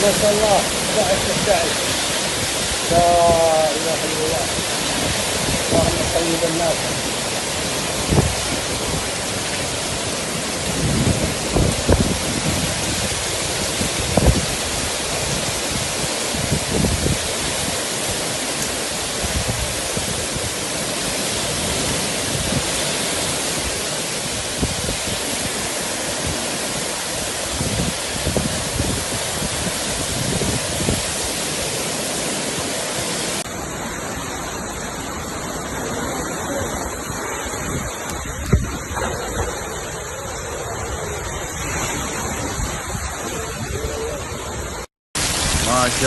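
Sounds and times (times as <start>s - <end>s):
wind buffeting microphone: 0.0s - 33.4s, 34.0s - 46.0s
water rushing: 0.0s - 46.0s.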